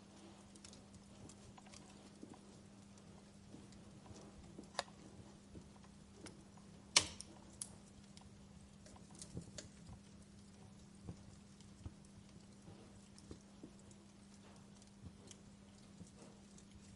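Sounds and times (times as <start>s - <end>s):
wood fire crackling: 0.0s - 16.9s.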